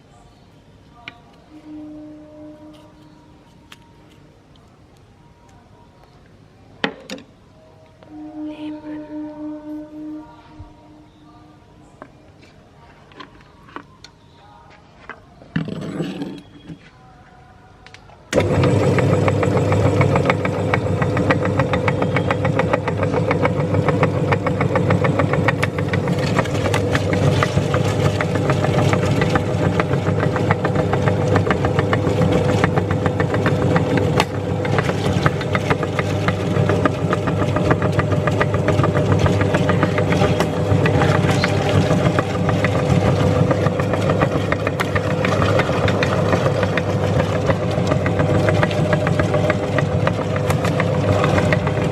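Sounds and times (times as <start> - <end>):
meat grinder motor running: 18.4 - 51.9
rapid crackle: 25.1 - 51.9.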